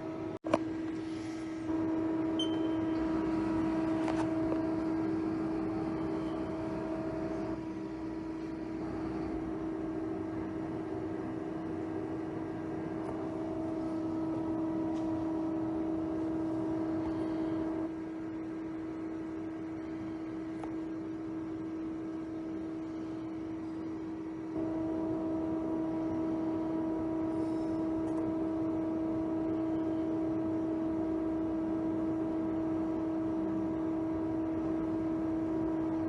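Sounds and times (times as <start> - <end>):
lathe whine: 0.0 - 36.0
short high beep: 2.4 - 3.0.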